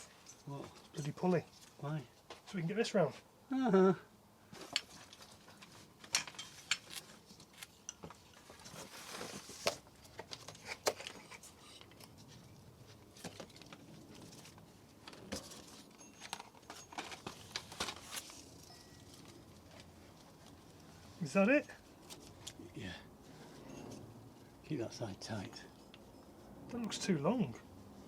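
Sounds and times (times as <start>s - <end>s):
rustling: 4.5s - 24.6s
metal tools clicking and clinking: 6.0s - 7.0s.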